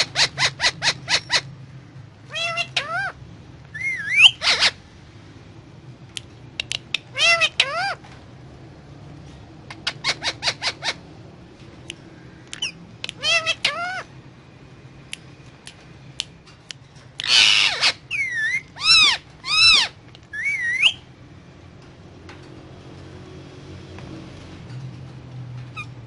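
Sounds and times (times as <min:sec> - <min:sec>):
parakeet squawking: 0:00.0 - 0:01.5, 0:02.2 - 0:04.8, 0:06.9 - 0:08.1, 0:09.6 - 0:11.1, 0:12.5 - 0:14.1, 0:17.2 - 0:21.1, 0:25.8 - 0:26.0
harsh parakeet screech: 0:03.8 - 0:04.8, 0:12.6 - 0:14.1, 0:17.2 - 0:21.0
parakeet clicks: 0:06.1 - 0:07.1, 0:11.8 - 0:13.7.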